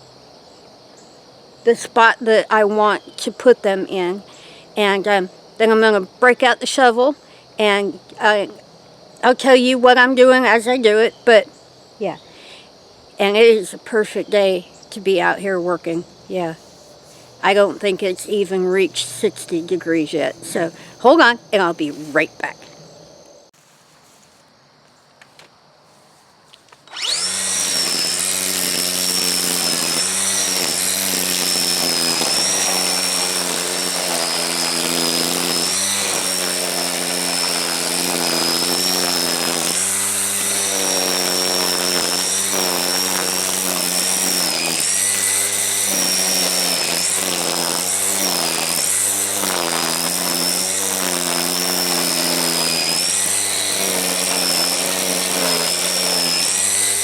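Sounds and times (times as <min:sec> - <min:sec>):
string trimmer cutting grass: 0:01.7 - 0:22.6, 0:26.6 - 0:57.0.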